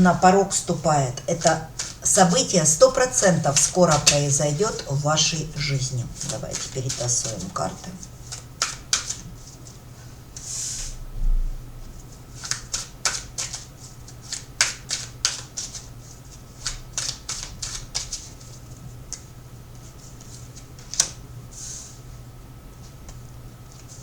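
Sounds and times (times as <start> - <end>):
cards being shuffled: 1.2 - 9.8, 12.0 - 19.3, 20.1 - 21.2.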